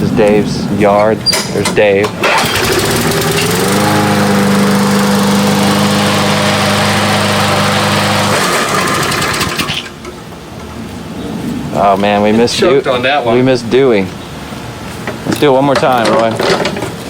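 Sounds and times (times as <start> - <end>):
lawn mower engine running: 1.2 - 10.8
loud rushing noise: 1.9 - 10.0.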